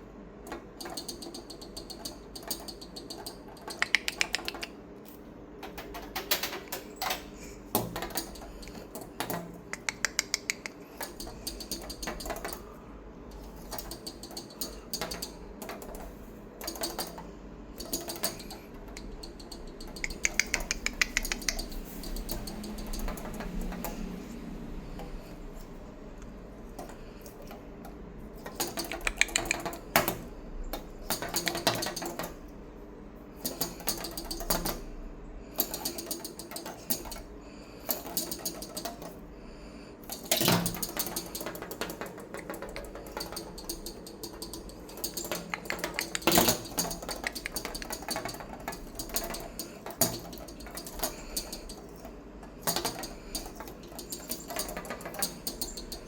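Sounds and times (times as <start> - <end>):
rapid light clicking: 0.5 - 4.8, 7.7 - 12.6, 13.3 - 24.0, 28.4 - 32.4, 40.0 - 56.0.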